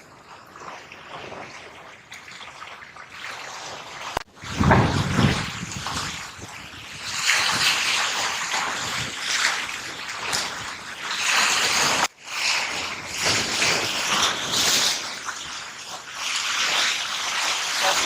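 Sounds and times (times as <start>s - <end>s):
surf washing on shore: 3.7s - 18.0s.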